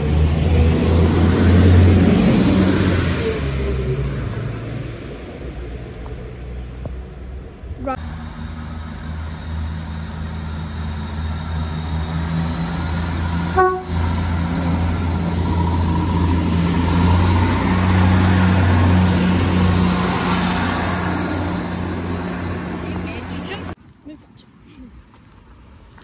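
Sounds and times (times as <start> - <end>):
diesel train engines droning: 0.0 - 23.8
wheel and rail noise: 0.0 - 23.8
train horn toot: 13.5 - 14.1.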